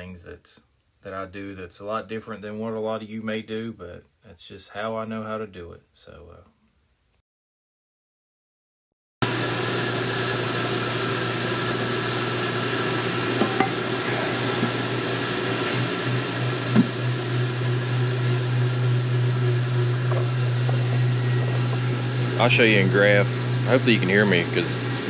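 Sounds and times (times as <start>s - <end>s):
lathe humming: 9.2s - 25.0s.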